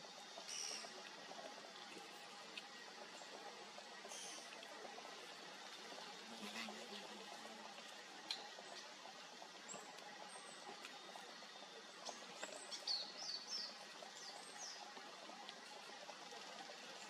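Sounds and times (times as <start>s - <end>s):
faint steady hiss: 0.0s - 17.0s
birds chirping: 8.2s - 17.0s.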